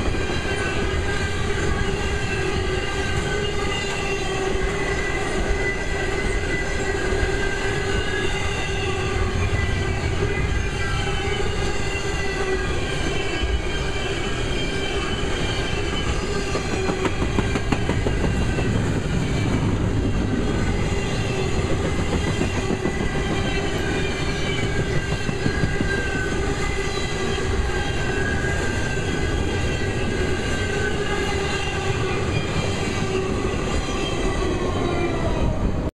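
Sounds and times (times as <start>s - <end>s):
train cars rumbling and rattling: 0.0s - 35.9s.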